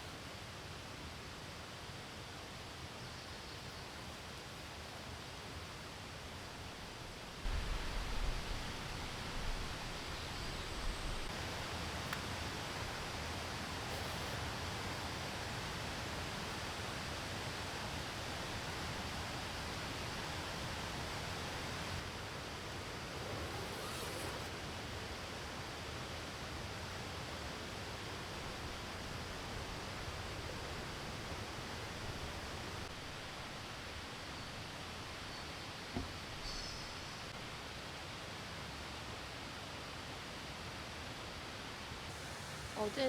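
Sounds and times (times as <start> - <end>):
steady outdoor hiss: 0.0 - 43.0
faint rustle: 7.4 - 15.6, 23.0 - 24.6.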